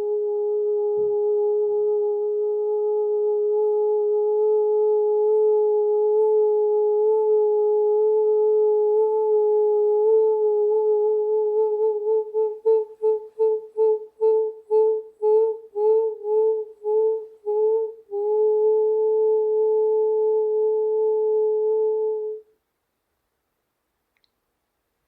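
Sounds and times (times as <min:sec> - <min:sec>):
sustained pure tone: 0:00.0 - 0:22.5.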